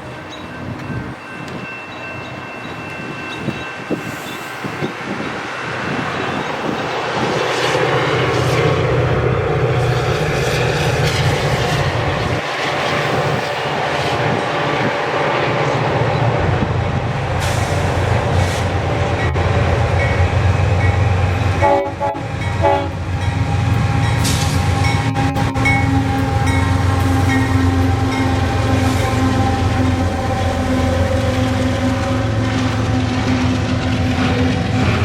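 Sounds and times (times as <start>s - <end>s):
train rumbling on rails: 0.0s - 35.0s
train air horn: 21.5s - 23.2s, 23.8s - 35.0s.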